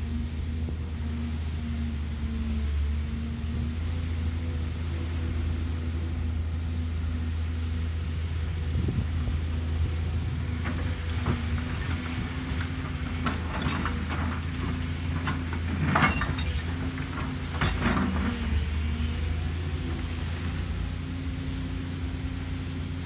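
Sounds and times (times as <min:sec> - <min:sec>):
excavator diesel engine running: 0:00.0 - 0:23.0
scraping and clatter: 0:10.6 - 0:18.8.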